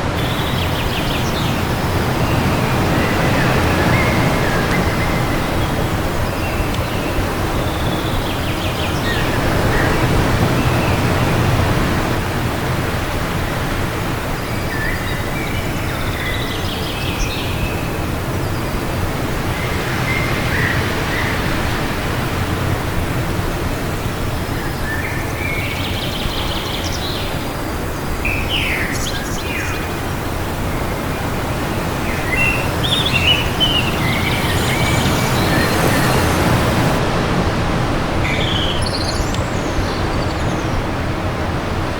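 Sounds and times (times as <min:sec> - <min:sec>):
wind rushing: 0:00.0 - 0:14.4, 0:29.9 - 0:38.3
birds chirping and calling: 0:00.2 - 0:09.2, 0:31.0 - 0:37.0.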